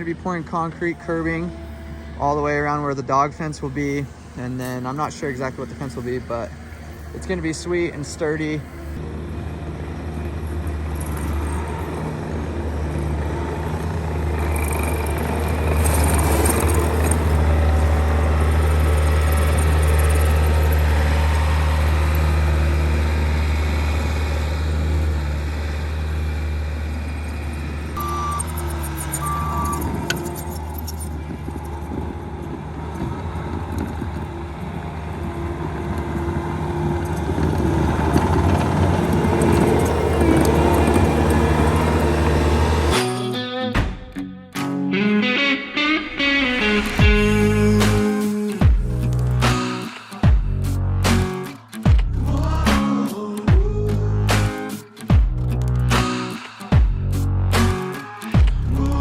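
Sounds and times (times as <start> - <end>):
diesel engine running: 0.0 - 43.5, 45.2 - 59.0
short high beeps: 28.0 - 30.0.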